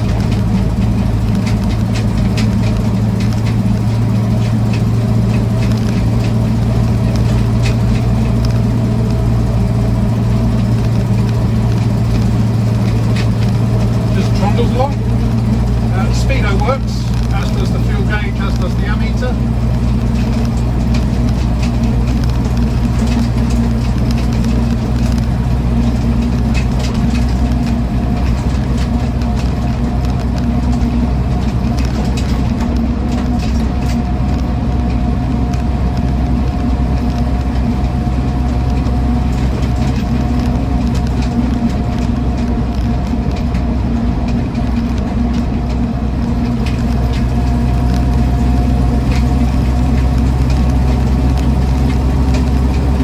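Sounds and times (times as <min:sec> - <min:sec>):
car engine cruising: 0:00.0 - 0:53.0
drivetrain noise: 0:00.0 - 0:53.0
tyre road noise: 0:00.0 - 0:53.0.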